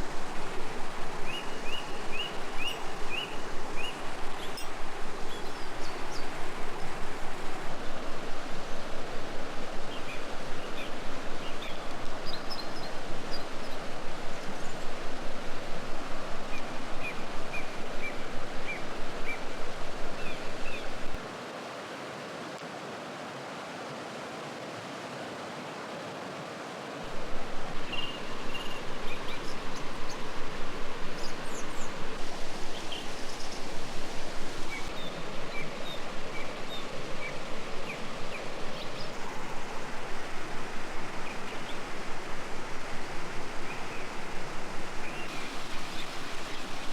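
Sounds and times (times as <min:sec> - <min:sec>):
river water flowing: 0:00.0 - 0:46.9
small birds chirping: 0:27.1 - 0:46.9.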